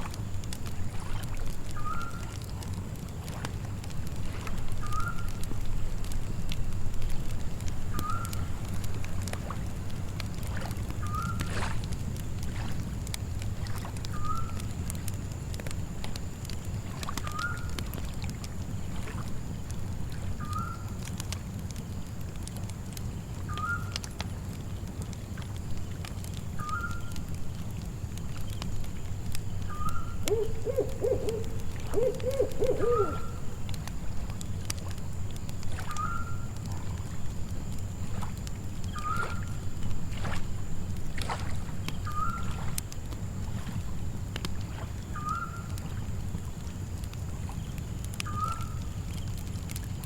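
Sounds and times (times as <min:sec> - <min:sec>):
crickets trilling: 0:00.0 - 0:03.2, 0:04.3 - 0:24.4, 0:25.1 - 0:50.0
water lapping: 0:00.0 - 0:05.7, 0:08.0 - 0:14.7, 0:16.8 - 0:20.9, 0:26.9 - 0:47.6
campfire crackling and popping: 0:00.0 - 0:50.0.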